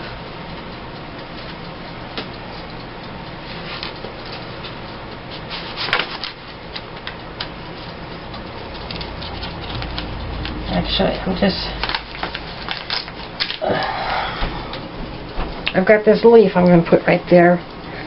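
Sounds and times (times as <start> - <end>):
low room hum: 0.0 - 18.0
paper rustling: 5.5 - 6.4.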